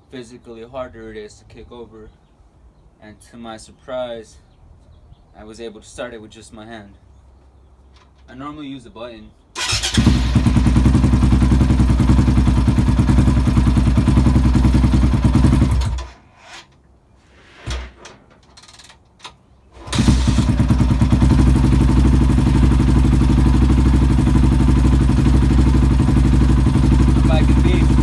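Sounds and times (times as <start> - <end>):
engine kick-started: 9.6 - 10.6, 15.6 - 16.2, 19.8 - 20.8
dirt bike engine idling: 9.6 - 16.0, 19.9 - 28.0.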